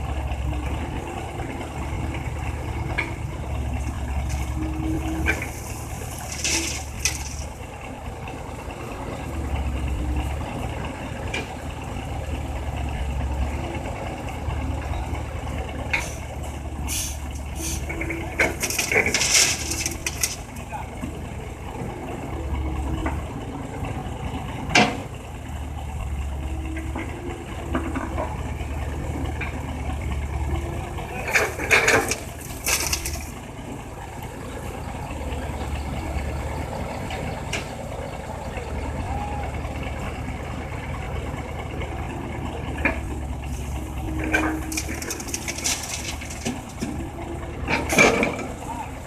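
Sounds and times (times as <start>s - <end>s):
diesel engine running: 0.0s - 49.0s
crunching rock: 18.5s - 20.5s, 44.5s - 46.9s.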